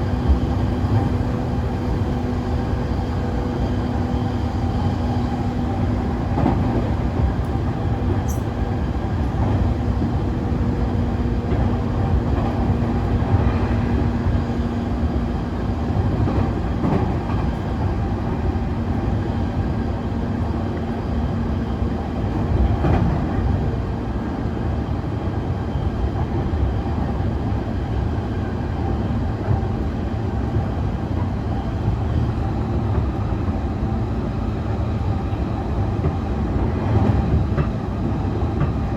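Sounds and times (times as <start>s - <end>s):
train wheels rumbling on rail: 0.0s - 38.9s
rail clicks: 36.0s - 38.9s.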